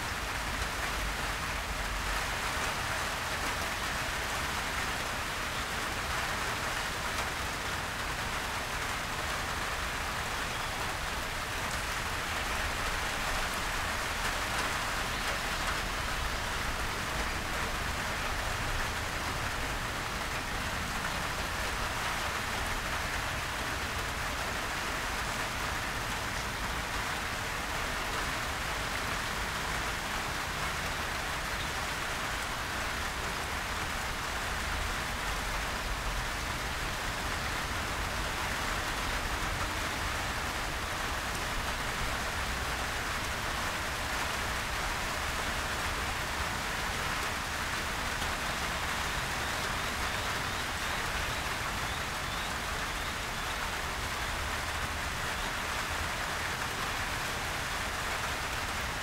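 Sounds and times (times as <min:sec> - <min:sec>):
heavy rain on foliage: 0:00.0 - 0:59.0.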